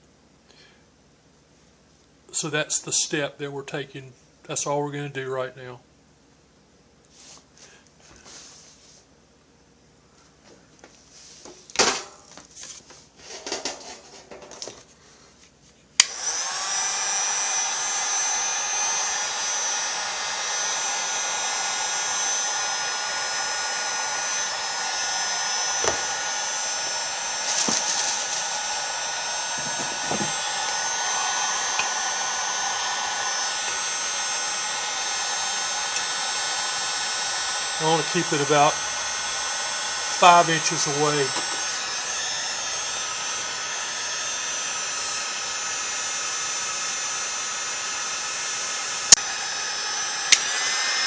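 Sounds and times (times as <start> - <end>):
heat gun fan whine: 11.6 - 14.9, 16.0 - 51.0.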